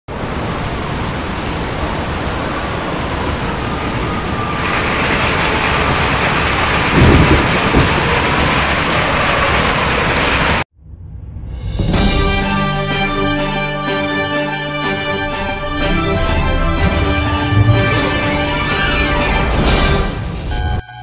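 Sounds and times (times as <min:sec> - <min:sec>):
strong wind: 0:00.1 - 0:10.6
heavy rain: 0:00.1 - 0:10.7
hail falling: 0:04.5 - 0:10.7.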